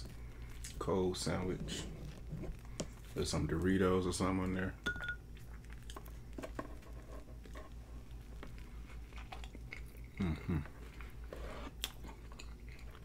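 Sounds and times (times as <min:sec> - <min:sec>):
biting and chewing burger: 0:05.2 - 0:13.0
person humming: 0:10.2 - 0:10.8.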